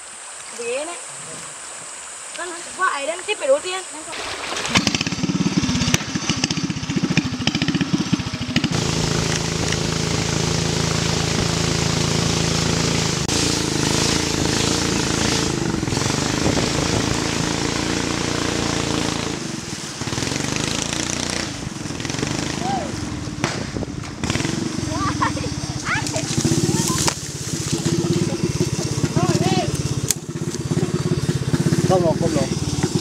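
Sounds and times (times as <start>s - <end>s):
boat engine droning: 0.0s - 33.0s
hiss of spray: 9.1s - 15.6s.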